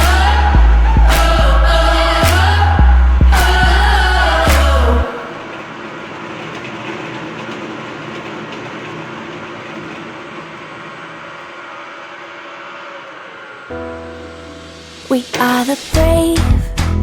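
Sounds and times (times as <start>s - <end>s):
machine rattling clatter: 5.4s - 13.7s.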